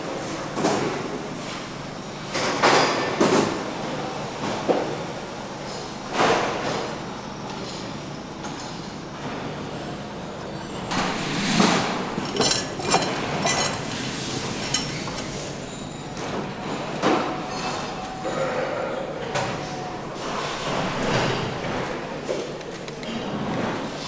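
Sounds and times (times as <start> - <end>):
machinery hum: 3.2 - 24.0
metallic clinks and knocks: 12.0 - 15.8.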